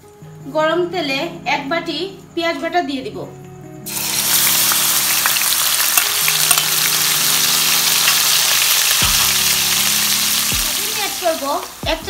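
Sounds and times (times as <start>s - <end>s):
paste sizzling in hot oil: 3.9s - 12.0s.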